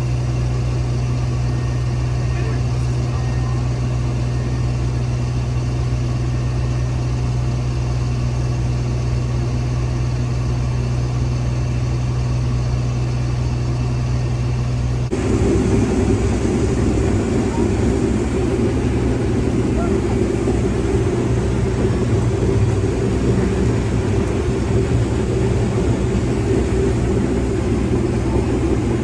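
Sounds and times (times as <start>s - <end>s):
combine engine drone: 0.0s - 29.0s
rough rumble: 14.9s - 29.0s.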